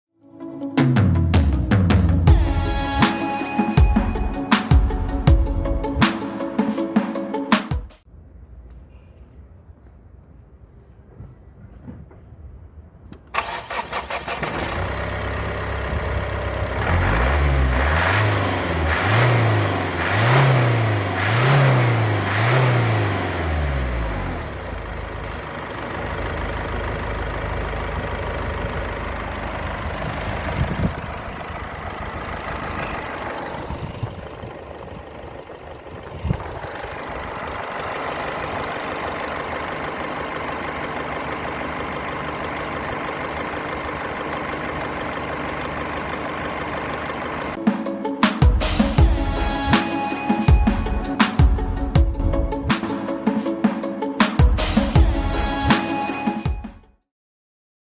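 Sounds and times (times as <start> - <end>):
car engine idling: 13.2 - 47.6
car engine starting and revving: 13.2 - 47.6.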